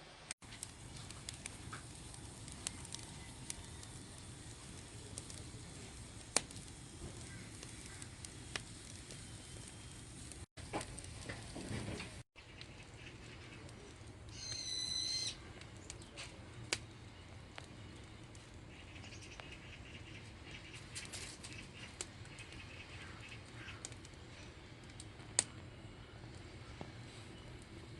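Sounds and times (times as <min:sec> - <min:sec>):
wood fire crackling: 0:00.3 - 0:27.9
high whistle-like call: 0:14.3 - 0:15.4.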